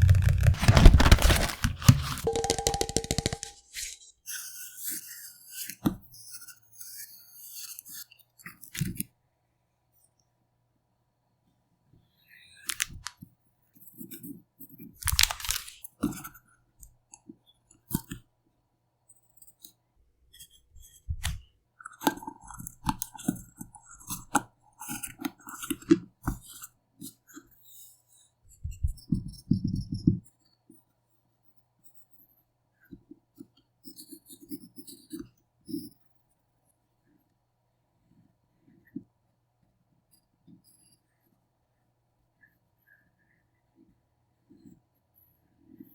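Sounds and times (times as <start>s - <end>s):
paper rustling: 0.0s - 4.2s, 15.0s - 15.9s
craft tools handled on desk: 0.5s - 4.1s
taps and clicks: 1.9s - 3.6s.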